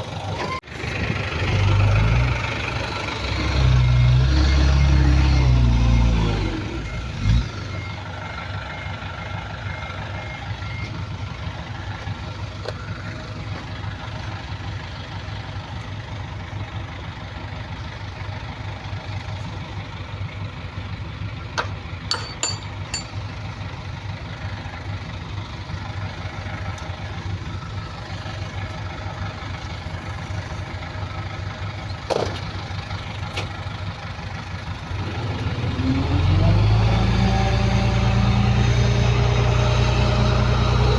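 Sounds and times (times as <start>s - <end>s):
diesel engine idling and revving: 0.0s - 40.9s
reversing beeper: 3.4s - 11.1s.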